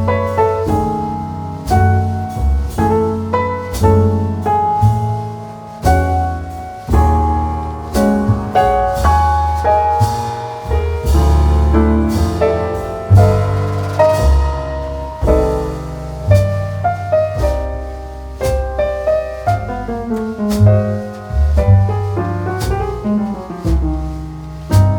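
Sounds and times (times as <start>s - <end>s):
piano music with bass: 0.0s - 24.9s.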